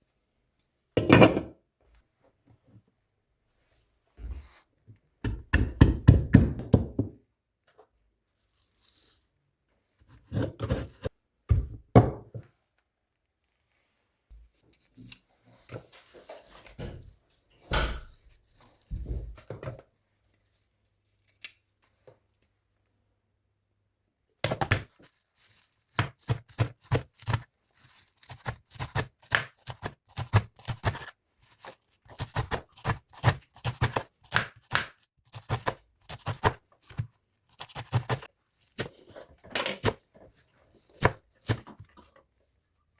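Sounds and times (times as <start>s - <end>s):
knife chopping on cutting board: 28.2s - 39.0s.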